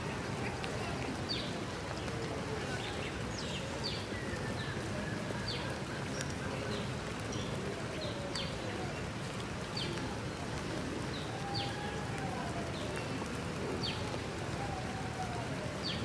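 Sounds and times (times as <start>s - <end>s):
small birds chirping: 0.0s - 11.8s
falling rain hiss: 0.0s - 16.0s.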